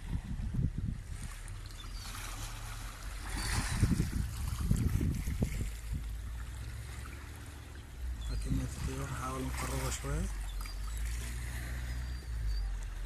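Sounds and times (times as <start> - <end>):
wind buffeting microphone: 0.0 - 12.7
wave washing on shore: 1.2 - 12.5.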